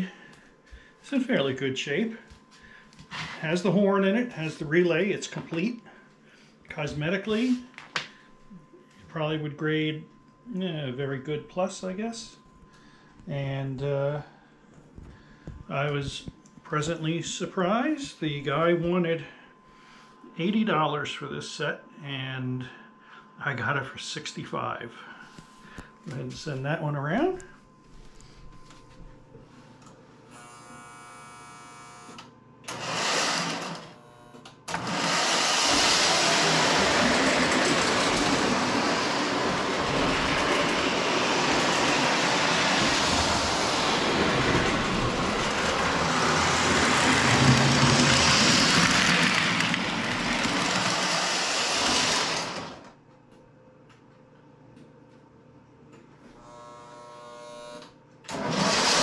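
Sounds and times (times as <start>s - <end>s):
model train running on track: 34.8s - 52.8s
electric train horn: 56.4s - 57.9s.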